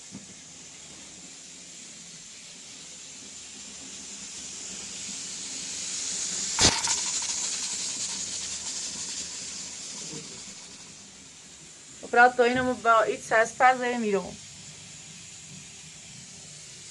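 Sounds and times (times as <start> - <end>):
high hiss: 0.0 - 16.9
sharp click: 6.6 - 7.1.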